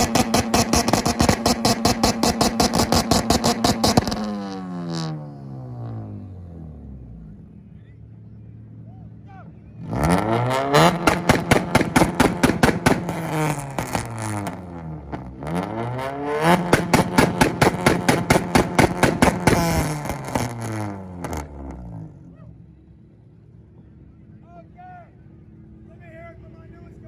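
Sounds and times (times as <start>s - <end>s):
car engine revving and popping: 0.0s - 7.4s, 9.8s - 22.3s.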